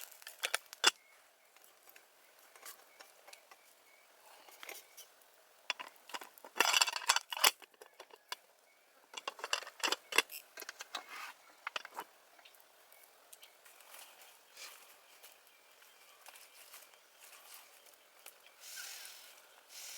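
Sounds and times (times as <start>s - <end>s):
small hard objects clinking: 0.0s - 1.0s, 5.7s - 8.4s, 9.1s - 10.9s.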